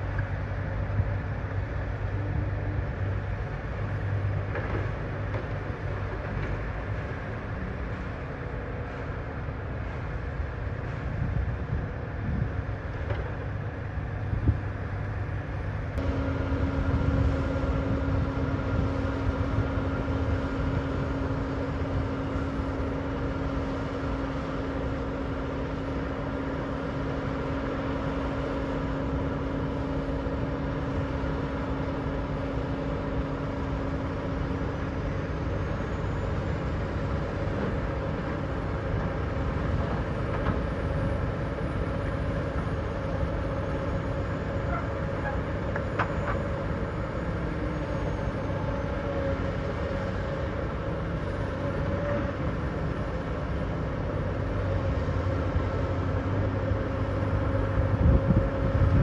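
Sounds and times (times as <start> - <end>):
heavy diesel engines rumbling: 0.0 - 59.0
steady whine: 13.7 - 59.0.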